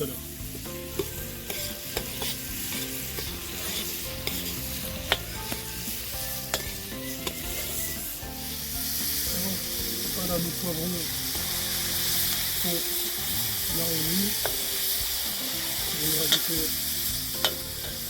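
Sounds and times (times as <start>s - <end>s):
vegetables sizzling in hot oil: 0.0s - 18.0s.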